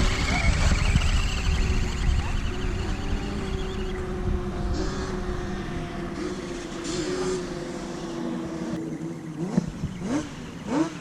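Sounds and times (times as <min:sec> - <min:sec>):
toy truck electric motor whining: 0:00.0 - 0:04.1.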